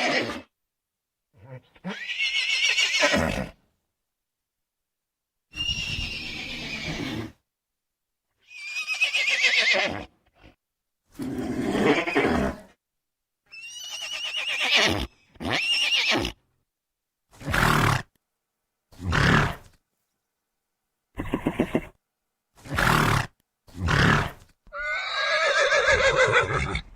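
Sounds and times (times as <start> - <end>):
horse neighing: 0.0 - 0.5, 1.4 - 3.6, 5.6 - 7.4, 8.5 - 10.1, 11.2 - 12.7, 13.5 - 16.4, 21.2 - 21.9, 22.7 - 26.9.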